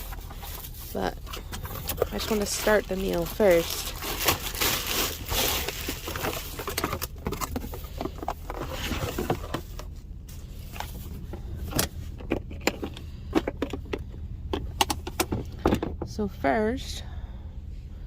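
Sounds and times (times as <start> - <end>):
packages rustling: 0.0 - 11.3
clicks and knocks of handling: 11.7 - 16.1.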